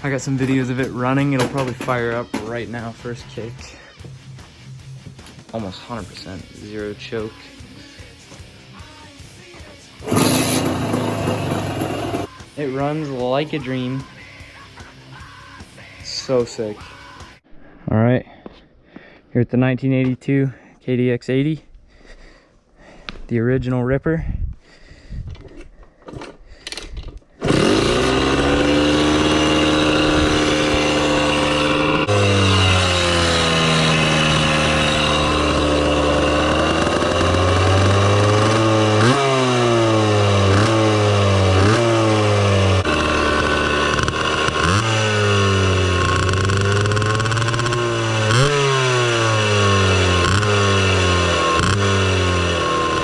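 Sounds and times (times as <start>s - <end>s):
motorcycle engine running: 10.0s - 12.3s, 27.5s - 53.0s.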